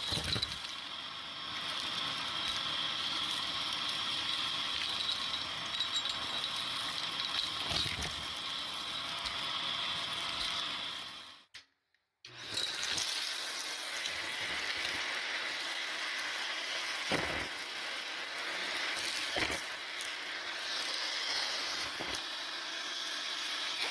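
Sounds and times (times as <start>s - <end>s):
vacuum cleaner whine: 0.0s - 11.5s, 12.3s - 23.9s.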